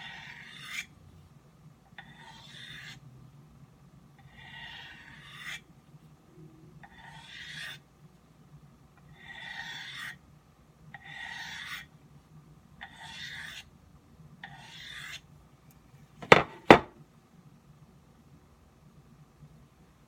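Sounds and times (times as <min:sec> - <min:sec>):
knife scraping on sharpening stone: 0:00.0 - 0:00.9, 0:02.0 - 0:03.0, 0:04.3 - 0:05.6, 0:06.8 - 0:07.8, 0:09.2 - 0:10.2, 0:11.0 - 0:11.9, 0:12.8 - 0:13.6
sharp knocks: 0:16.2 - 0:17.0.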